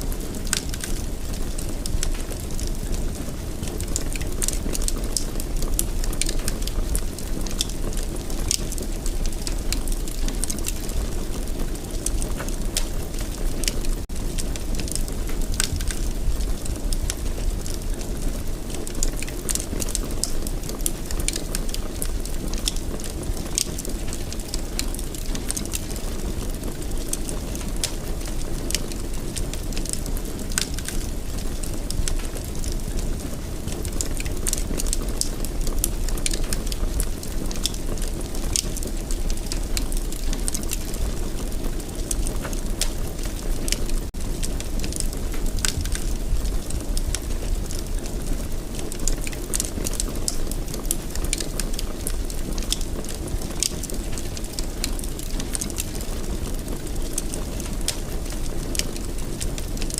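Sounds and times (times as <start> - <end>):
fire crackling and popping: 0.0 - 59.9
fire flames rumbling: 0.0 - 59.9.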